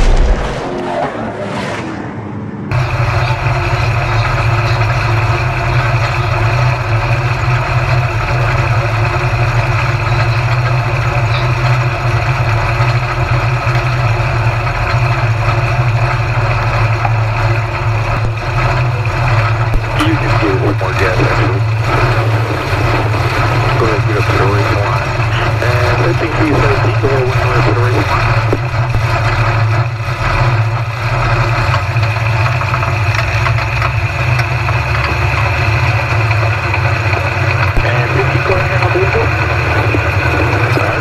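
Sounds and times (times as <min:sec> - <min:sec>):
burst of loud noise: 0:00.0 - 0:03.1
stock car engine running: 0:00.0 - 0:41.0.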